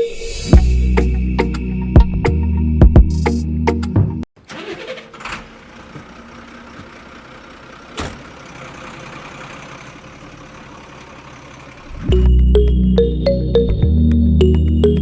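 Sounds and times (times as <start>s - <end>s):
music: 0.0s - 4.2s, 12.0s - 15.0s
engine running: 4.4s - 15.0s.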